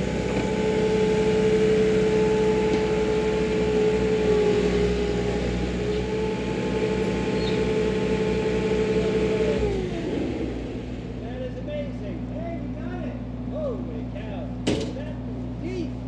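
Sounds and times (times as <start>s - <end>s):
construction machine engine whining: 0.0s - 16.0s.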